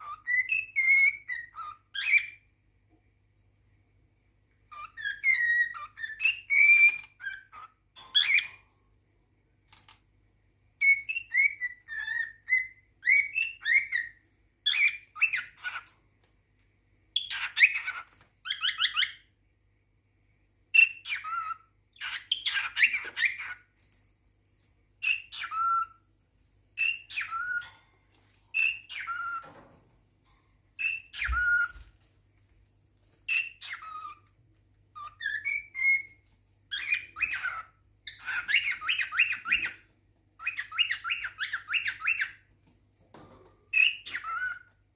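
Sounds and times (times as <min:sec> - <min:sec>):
cockatiel whistling: 0:00.0 - 0:02.4, 0:04.7 - 0:08.5, 0:10.8 - 0:15.8, 0:30.8 - 0:31.8, 0:35.0 - 0:36.1, 0:36.7 - 0:39.8, 0:40.4 - 0:42.4, 0:43.8 - 0:44.7.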